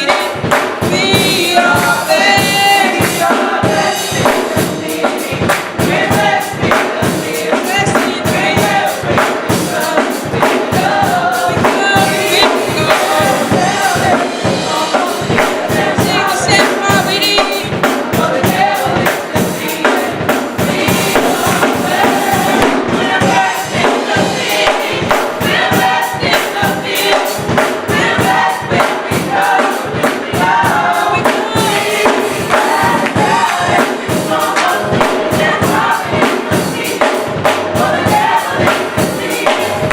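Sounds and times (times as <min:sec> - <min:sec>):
band with steady beat: 0:00.0 - 0:39.9
choir singing: 0:00.0 - 0:39.9.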